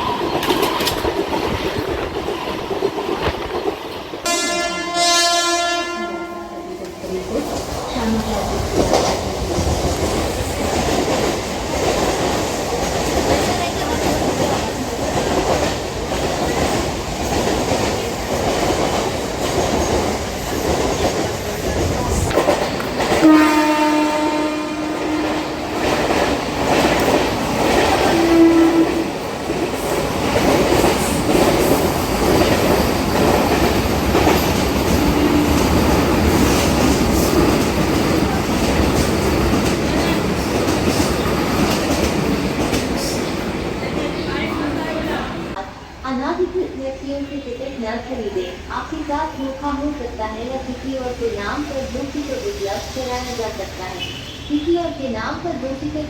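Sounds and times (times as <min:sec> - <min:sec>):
train horn: 0:04.2 - 0:07.0, 0:23.2 - 0:25.9, 0:28.0 - 0:29.2
train wheels clattering over joints: 0:25.3 - 0:44.2.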